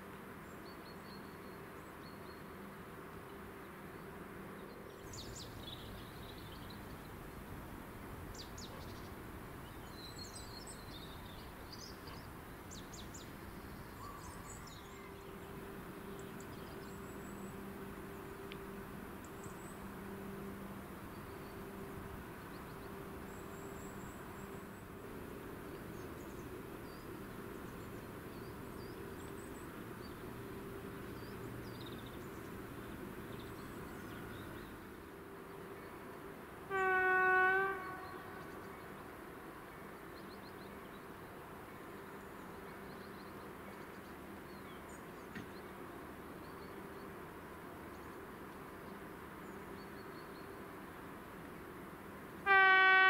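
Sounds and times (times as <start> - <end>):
faint steady hum: 0.0 - 53.0
train horn blast: 36.6 - 38.5, 52.4 - 53.0.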